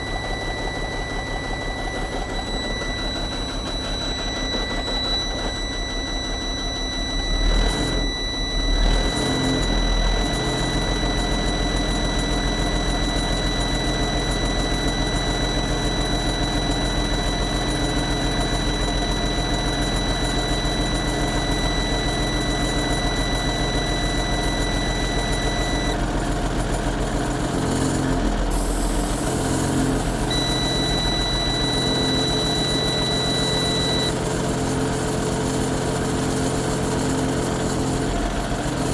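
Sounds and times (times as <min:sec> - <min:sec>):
steady high-pitched tone: 0:28.5 - 0:34.2.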